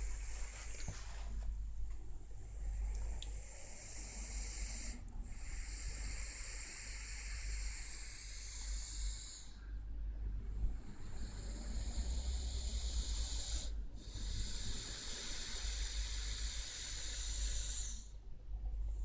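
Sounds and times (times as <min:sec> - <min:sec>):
dog snoring: 0:03.4 - 0:09.6, 0:10.7 - 0:18.1.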